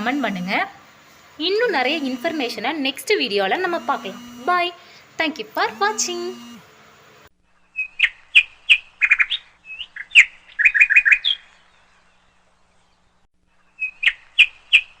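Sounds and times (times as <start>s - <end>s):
bird chirping: 7.6s - 15.0s.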